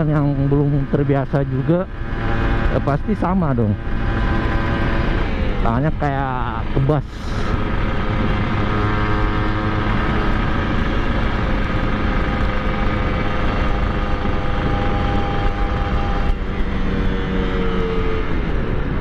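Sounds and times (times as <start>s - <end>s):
two-stroke motorcycle engine: 0.0s - 19.0s
person speaking: 5.6s - 7.5s
wind noise on microphone: 7.0s - 19.0s.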